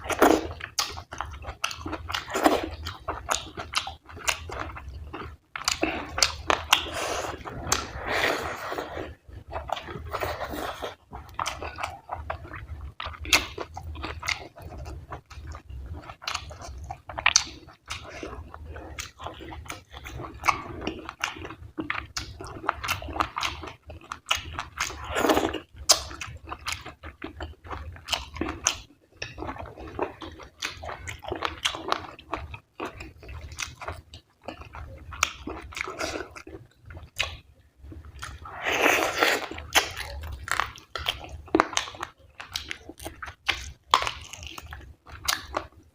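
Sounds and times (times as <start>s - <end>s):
close chewing and mouth smacks: 0.0s - 45.9s.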